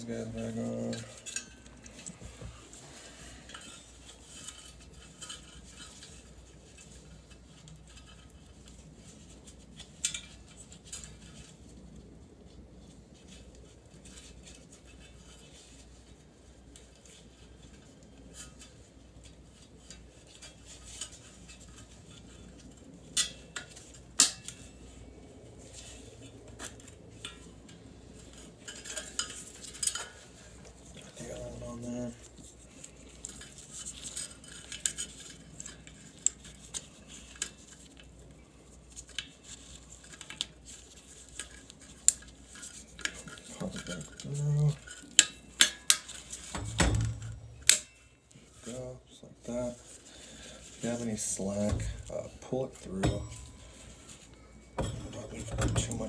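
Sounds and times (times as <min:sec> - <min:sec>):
metal parts and screws clinking: 0:41.4 - 0:48.2, 0:50.7 - 0:56.0.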